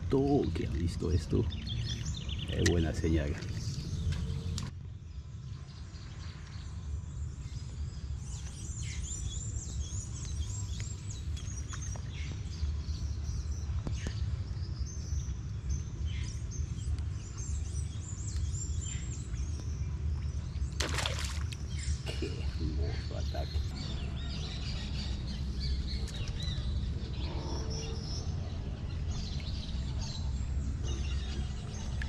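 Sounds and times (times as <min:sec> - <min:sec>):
small birds chirping: 0:00.0 - 0:32.0
low rumble: 0:21.5 - 0:32.0.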